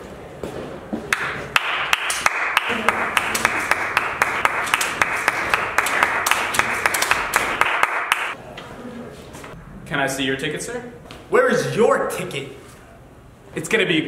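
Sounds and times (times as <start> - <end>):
people clapping: 1.1 - 8.4.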